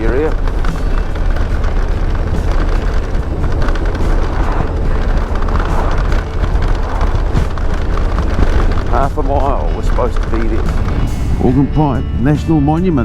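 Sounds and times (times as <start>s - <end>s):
motorcycle engine: 0.0s - 13.0s
road noise: 0.0s - 13.0s
wind buffeting microphone: 0.0s - 13.0s.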